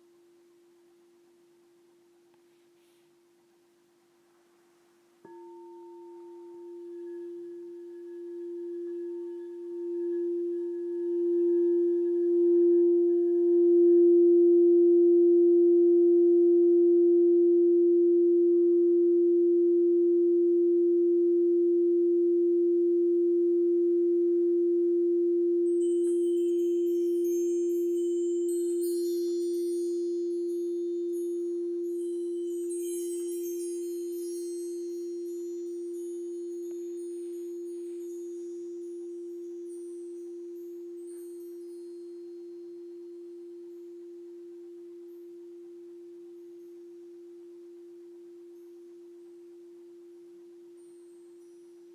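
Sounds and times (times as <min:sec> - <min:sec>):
singing bowl sustained tone: 0:00.0 - 0:51.9
high tinkling chimes: 0:05.3 - 0:13.7, 0:25.7 - 0:51.9.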